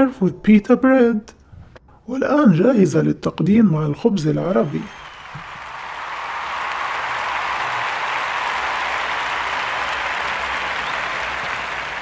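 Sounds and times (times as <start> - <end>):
crowd applauding: 4.5 - 12.0.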